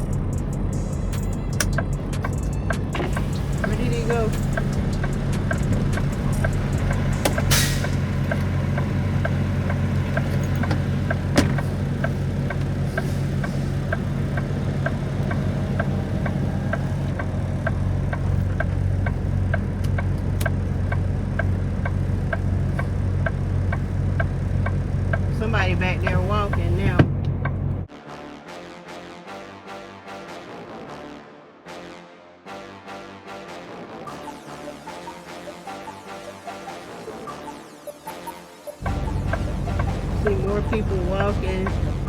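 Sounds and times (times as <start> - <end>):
truck diesel engine running: 0.0 - 27.9, 38.8 - 42.0.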